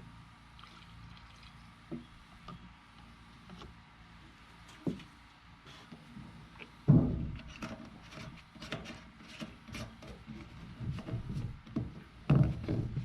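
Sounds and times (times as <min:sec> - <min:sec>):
handling knocks and rubbing: 0:05.8 - 0:13.0
heavy thump: 0:06.9 - 0:07.5.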